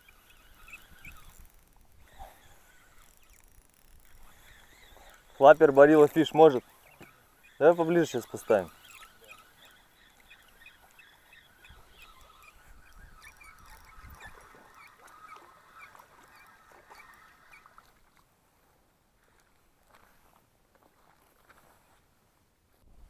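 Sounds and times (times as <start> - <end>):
faint short bird calls: 6.2 - 18.0.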